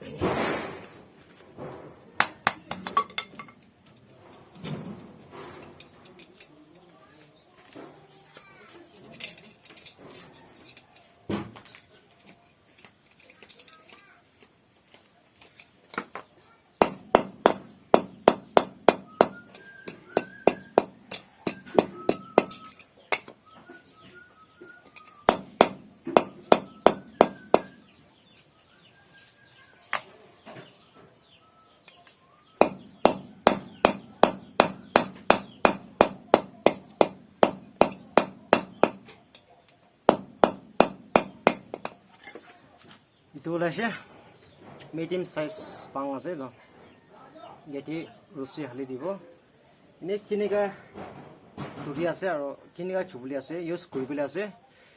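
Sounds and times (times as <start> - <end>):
birds chirping faintly: 0.8 - 54.9
rapid sharp knocks: 16.8 - 22.6, 25.3 - 27.8, 32.6 - 39.1, 40.1 - 41.8.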